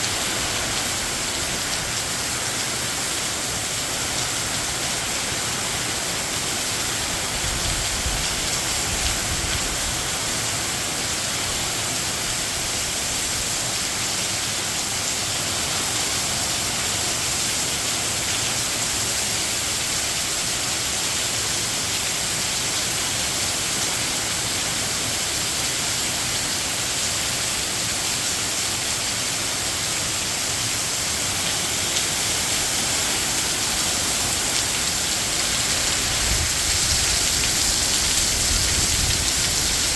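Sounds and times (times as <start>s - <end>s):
heavy rain: 0.0s - 39.9s
wind gusts rumbling: 33.2s - 39.9s.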